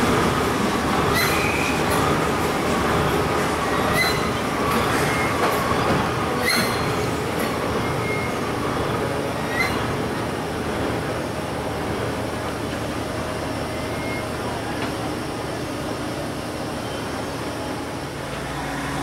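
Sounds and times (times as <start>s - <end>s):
train wheels rumbling on rail: 0.0s - 19.0s
wheels squealing: 1.1s - 1.8s, 3.7s - 4.4s, 6.4s - 7.0s, 7.8s - 8.4s.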